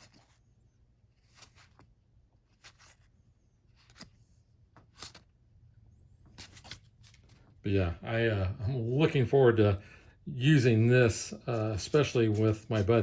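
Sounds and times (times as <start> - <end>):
game cards sliding and flicking: 0.0 - 5.4, 6.2 - 7.5, 11.1 - 13.0
low room hum: 0.0 - 13.0.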